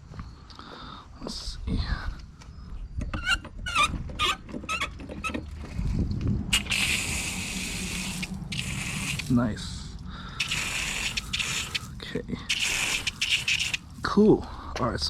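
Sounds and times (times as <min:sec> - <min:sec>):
water hissing from spray gun: 0:06.5 - 0:09.4, 0:10.4 - 0:14.1
spray gun clicking and knocking: 0:06.6 - 0:09.3, 0:10.4 - 0:11.9, 0:12.5 - 0:14.0.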